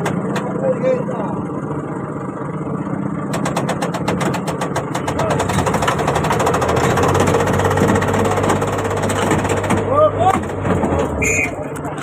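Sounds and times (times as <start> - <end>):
engine running with rattle: 0.0 - 12.0.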